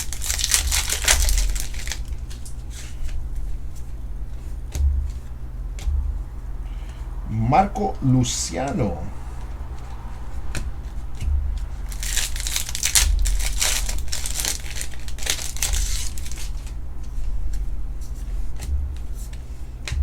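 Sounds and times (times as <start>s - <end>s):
cards and foil wrapper crinkling: 0.0s - 3.0s, 11.8s - 16.8s
low electrical hum: 0.0s - 20.0s.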